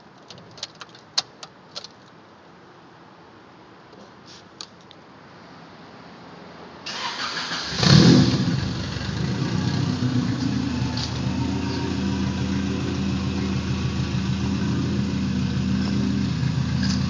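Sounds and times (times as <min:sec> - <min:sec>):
two-stroke engine starting and idling: 0:06.9 - 0:17.0.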